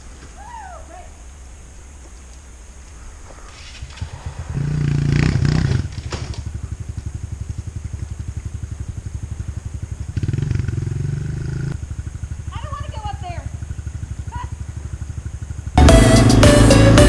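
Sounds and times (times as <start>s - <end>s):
dirt bike engine revving: 3.8s - 17.0s.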